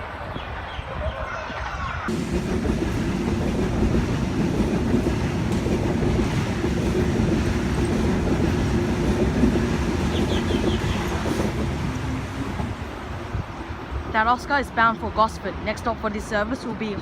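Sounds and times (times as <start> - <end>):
train rumbling past: 1.5 - 17.0
wheels clacking over rail joints: 2.1 - 13.7.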